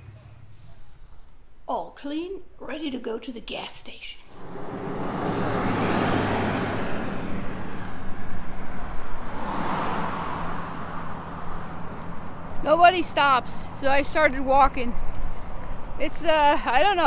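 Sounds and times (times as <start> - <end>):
cars passing by: 4.2 - 17.0.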